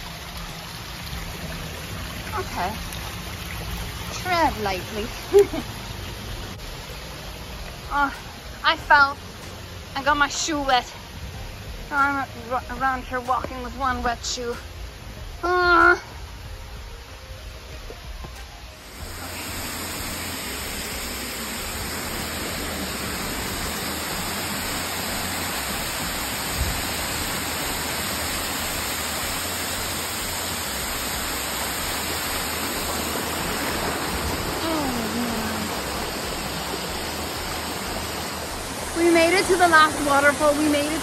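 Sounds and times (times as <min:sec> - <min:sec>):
waterfall rushing: 0:00.0 - 0:16.2, 0:18.6 - 0:41.0.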